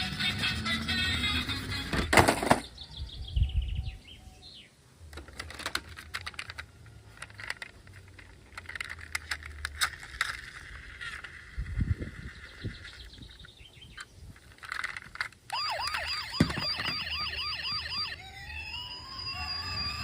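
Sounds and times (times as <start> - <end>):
faint bird chirps: 2.7 - 4.8.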